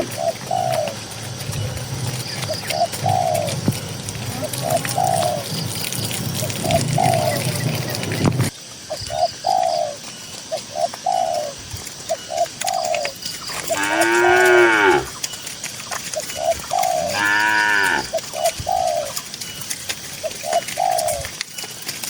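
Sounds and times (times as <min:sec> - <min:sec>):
dove cooing: 0:00.0 - 0:21.4
cow mooing: 0:13.7 - 0:15.2, 0:17.0 - 0:18.2.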